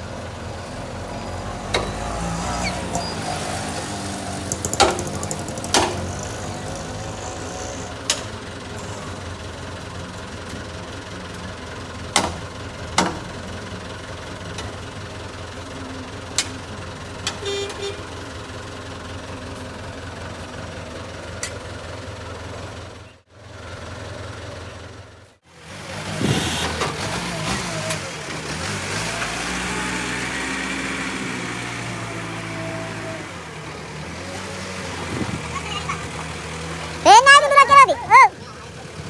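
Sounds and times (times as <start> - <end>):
diesel engine running: 0.0 - 39.0
horn toot: 26.2 - 26.9.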